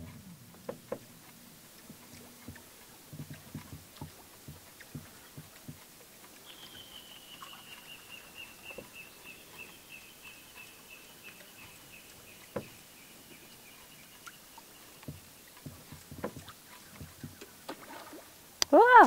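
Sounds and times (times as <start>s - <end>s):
short knocks: 1.8s - 5.8s, 15.0s - 18.2s
bird calling high notes: 6.4s - 8.6s.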